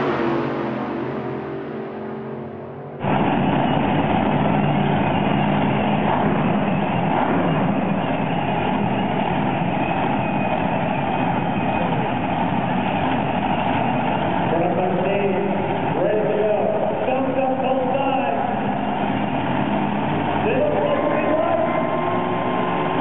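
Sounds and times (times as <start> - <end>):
pitched engine note: 0.0 - 8.1, 14.4 - 23.0
monster truck engine running: 0.0 - 23.0.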